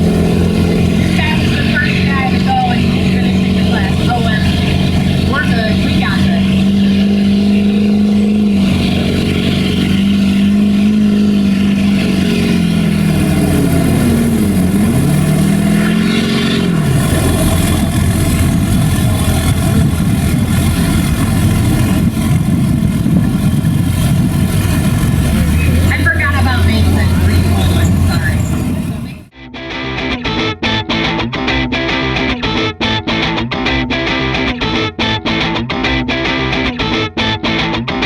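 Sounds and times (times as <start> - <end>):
diesel truck engine revving: 0.0 - 29.3.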